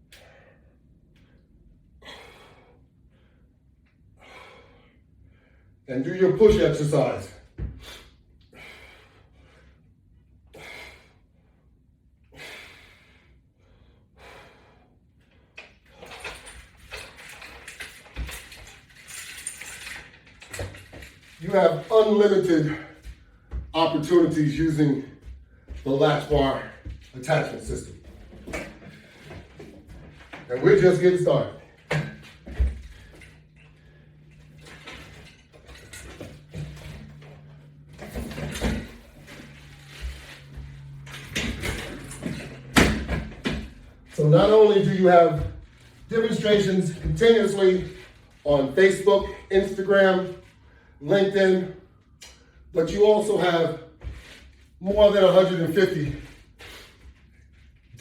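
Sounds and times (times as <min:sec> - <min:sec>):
man breathing forcefully: 0:02.0 - 0:03.5, 0:04.2 - 0:05.8, 0:07.7 - 0:09.9, 0:10.5 - 0:11.6, 0:12.3 - 0:16.2, 0:56.5 - 0:57.2
clicks and rattles: 0:15.6 - 0:21.4.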